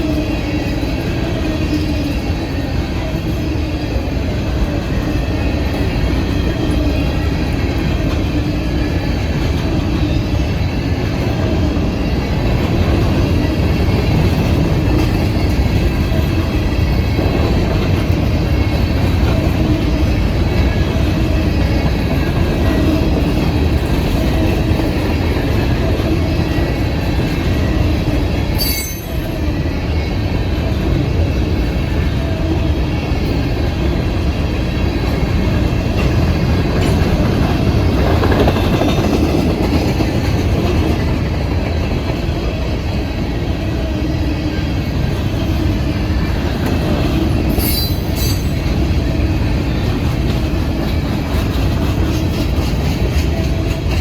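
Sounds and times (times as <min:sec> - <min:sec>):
train wheels rumbling on rails: 0:00.0 - 0:54.0
wheel squeal: 0:28.5 - 0:29.4, 0:47.4 - 0:48.8
sharp high-pitched squeak: 0:28.6 - 0:29.3, 0:47.5 - 0:48.6.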